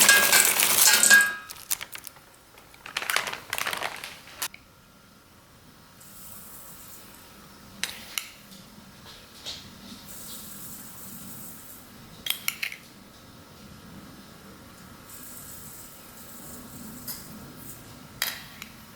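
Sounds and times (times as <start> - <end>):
utensils clinking against dishes: 0.0 - 1.8.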